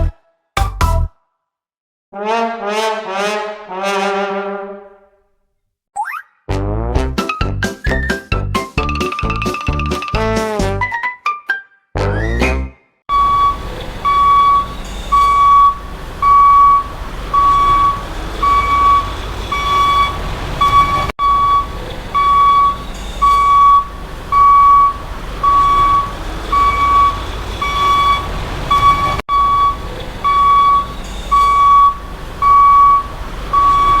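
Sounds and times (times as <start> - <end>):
low engine rumble: 13.1 - 34.0
reversing alarm beeping: 13.1 - 34.0.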